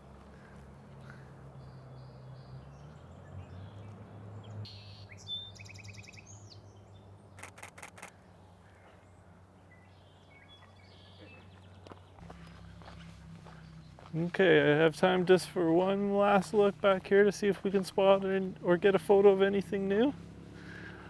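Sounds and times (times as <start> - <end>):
camera shutter firing: 7.4 - 8.1.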